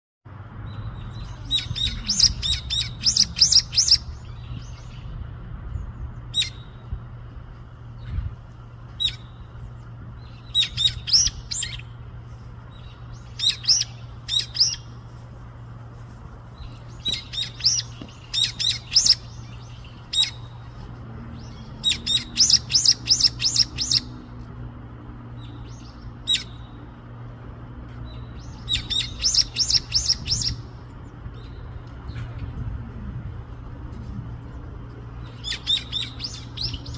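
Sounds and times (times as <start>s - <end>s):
steady low hum: 0.3s - 36.9s
bird chirping rapidly: 0.7s - 5.2s, 12.8s - 14.9s, 16.6s - 20.6s, 21.4s - 24.2s, 28.3s - 30.6s, 35.2s - 36.9s.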